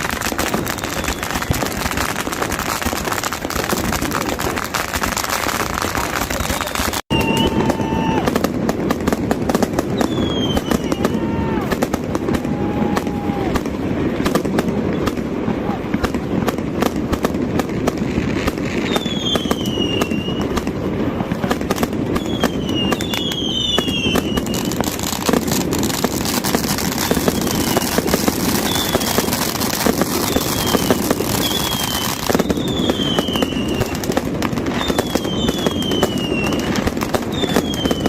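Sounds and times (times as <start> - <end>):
firecrackers crackling: 0.0 - 38.0
whistling fireworks: 0.0 - 38.0
crowd din: 10.6 - 17.0.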